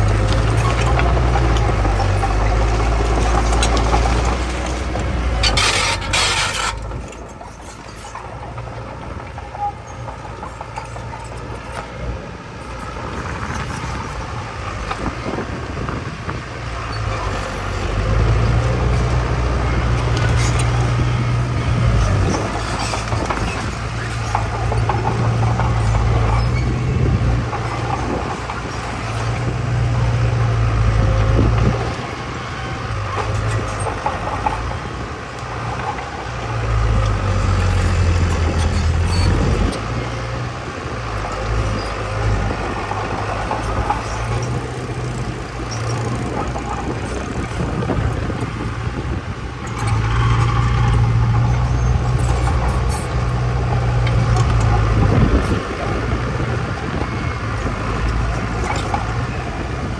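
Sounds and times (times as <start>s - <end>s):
diesel earth-moving machinery rumble: 0.0s - 59.9s.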